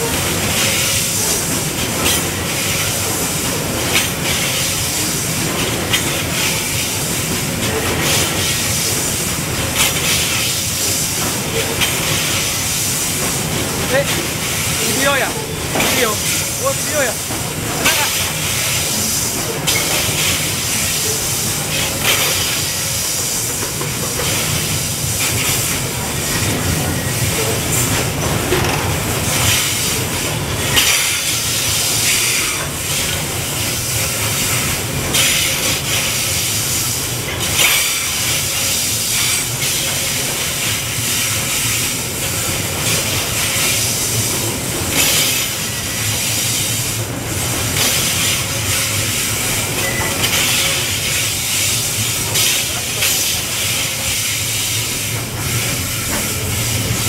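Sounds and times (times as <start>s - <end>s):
steel wheels rolling on rails: 0.0s - 57.0s.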